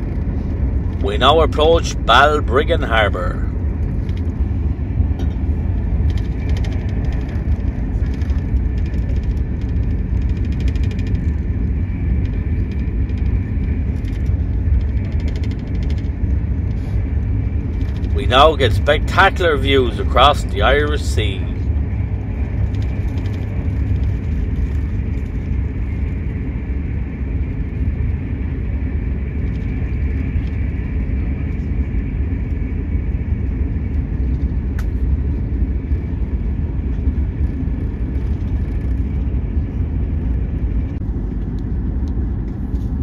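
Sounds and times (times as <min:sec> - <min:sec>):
faint high whine: 0:00.0 - 0:43.0
train rumbling inside carriage: 0:00.0 - 0:43.0.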